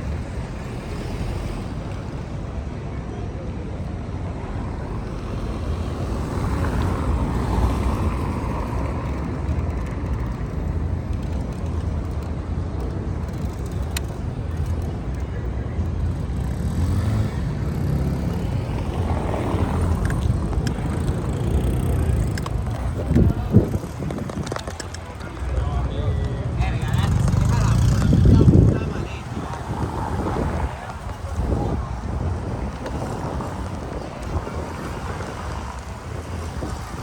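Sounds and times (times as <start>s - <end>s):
city traffic: 0.0s - 37.0s
wind on microphone: 16.0s - 37.0s.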